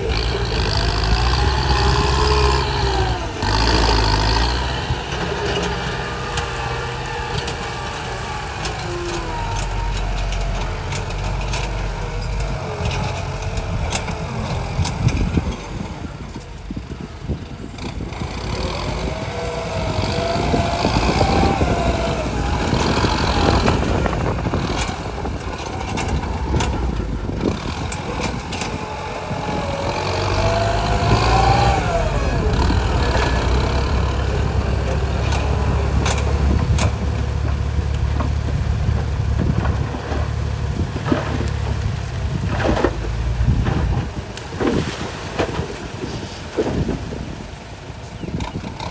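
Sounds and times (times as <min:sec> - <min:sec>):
deep steady rumble: 0:00.0 - 0:48.9
truck engine whining under load: 0:00.0 - 0:48.9.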